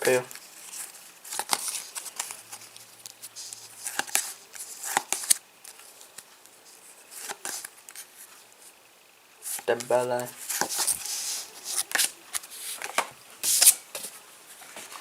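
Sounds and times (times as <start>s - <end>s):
trading cards snapping and sliding: 11.7s - 13.8s.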